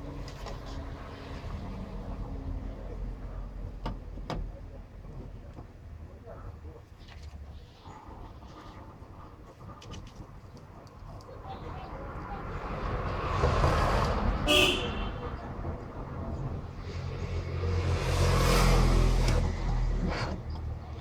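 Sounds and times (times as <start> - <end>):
vehicles passing: 0.0 - 5.6, 10.5 - 21.0.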